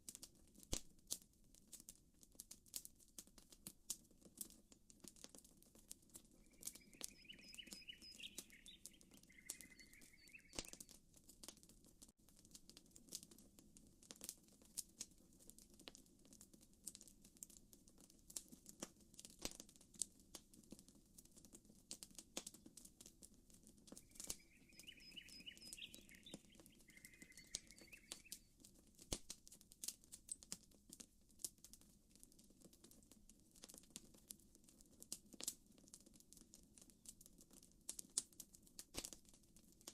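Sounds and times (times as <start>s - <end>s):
campfire crackling and popping: 0.0s - 39.9s
bird chirping trill: 6.4s - 10.8s, 24.0s - 28.5s.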